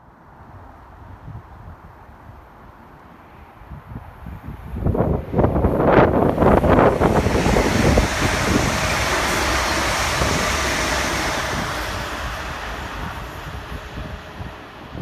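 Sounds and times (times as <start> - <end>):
wind buffeting microphone: 3.6 - 15.0
train passing at speed: 4.2 - 15.0.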